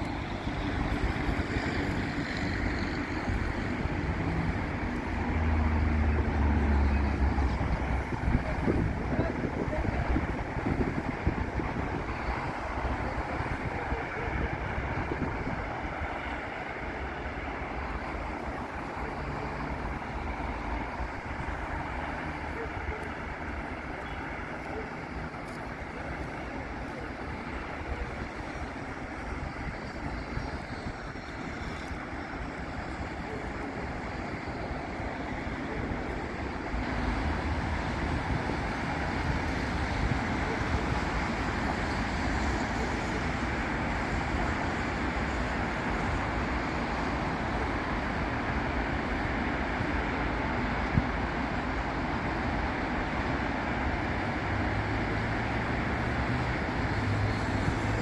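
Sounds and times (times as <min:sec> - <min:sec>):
cars and buses passing: 0:00.0 - 0:58.0
heavy vehicle engine drone: 0:00.0 - 0:58.0.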